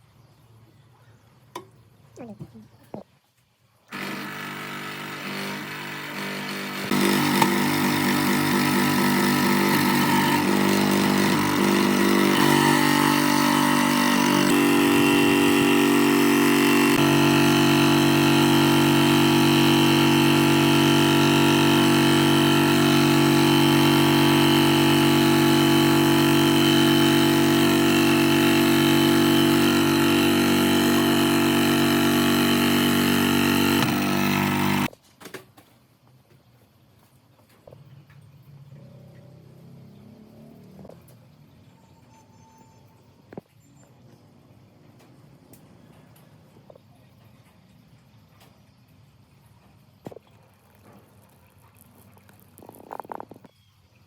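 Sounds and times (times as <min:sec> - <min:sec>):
jigsaw motor droning: 0:03.9 - 0:34.9, 0:52.3 - 0:53.5.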